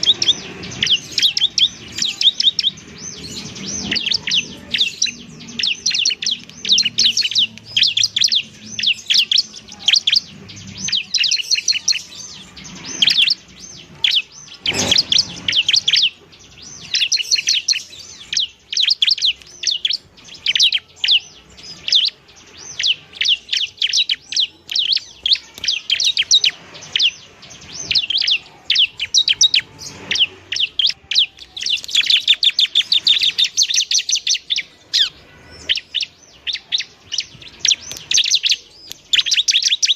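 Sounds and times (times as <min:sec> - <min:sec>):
bird singing sharp chirps: 0:00.0 - 0:39.9.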